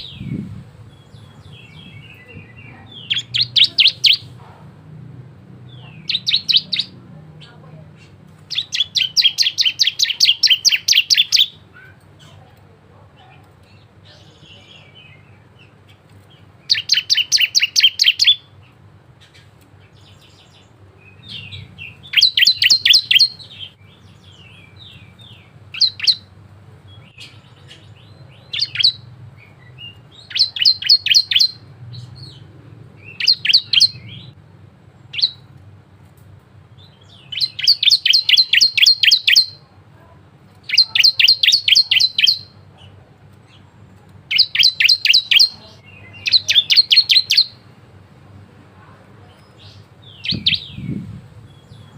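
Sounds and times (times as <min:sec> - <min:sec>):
bird singing sharp high chips: 0:08.4 - 0:11.6, 0:16.7 - 0:18.5, 0:36.8 - 0:39.6, 0:40.6 - 0:42.6, 0:44.3 - 0:47.6.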